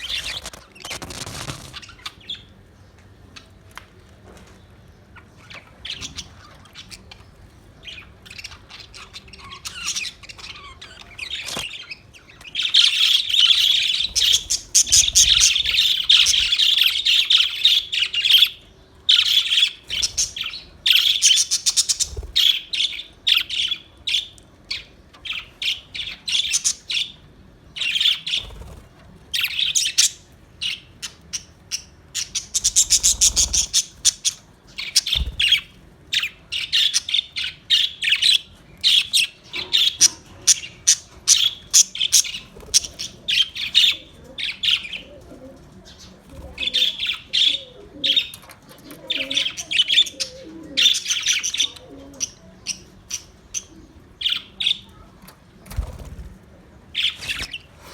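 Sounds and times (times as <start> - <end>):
parrots chirping and squawking: 0.0 - 2.5, 5.2 - 27.2, 29.4 - 45.2, 57.0 - 57.9.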